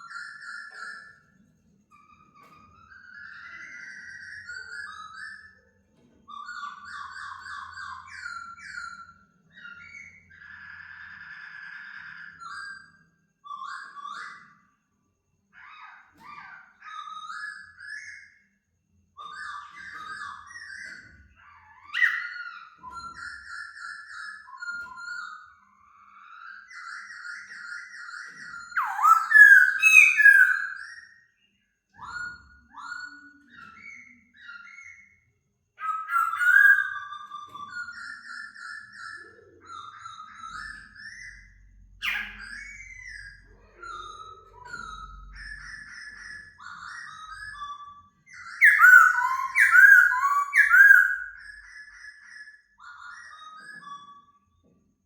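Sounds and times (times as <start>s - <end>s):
bird singing whistled phrases: 21.9s - 25.5s, 26.1s - 35.2s, 35.8s - 54.4s.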